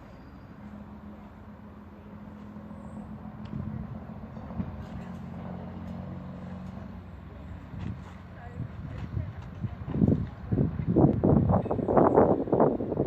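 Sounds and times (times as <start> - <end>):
train engine idling: 0.0 - 10.9.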